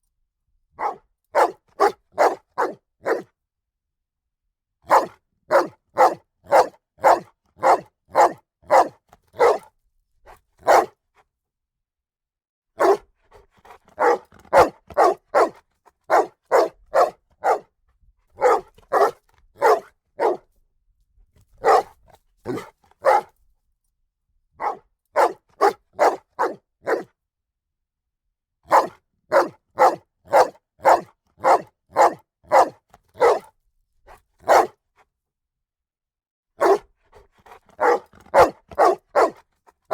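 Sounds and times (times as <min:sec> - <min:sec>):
dog barking loudly: 0:00.8 - 0:03.3, 0:04.9 - 0:09.7, 0:10.6 - 0:10.9, 0:12.8 - 0:13.0, 0:14.0 - 0:17.7, 0:18.4 - 0:20.4, 0:21.6 - 0:23.3, 0:24.6 - 0:27.1, 0:28.7 - 0:33.5, 0:34.4 - 0:34.8, 0:36.6 - 0:36.9, 0:37.7 - 0:39.4.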